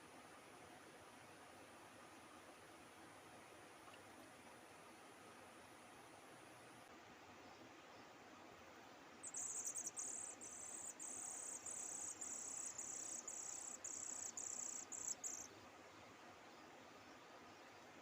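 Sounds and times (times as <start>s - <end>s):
faint outdoor hiss: 0.0s - 18.0s
insect trilling: 9.2s - 15.5s.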